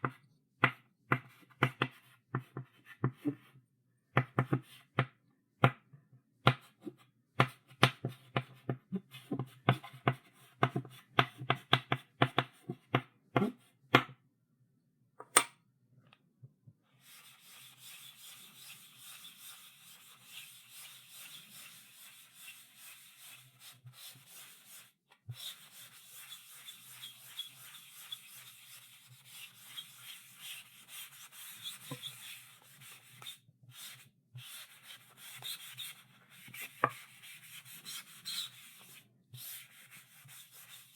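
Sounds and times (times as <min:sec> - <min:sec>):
chalk tapping on chalkboard: 0:07.4 - 0:13.5, 0:17.0 - 0:40.9
chalk scratching on chalkboard: 0:17.0 - 0:40.9.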